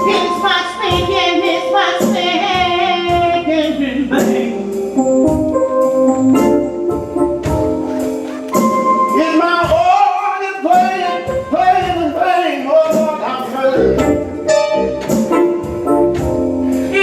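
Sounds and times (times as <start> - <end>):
gospel singing: 0.0 - 5.0, 8.0 - 15.5
drums: 0.0 - 17.0.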